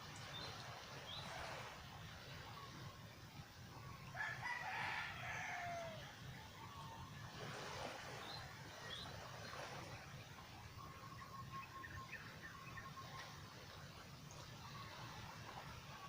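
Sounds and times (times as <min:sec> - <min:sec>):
rooster crowing: 0:04.1 - 0:06.1.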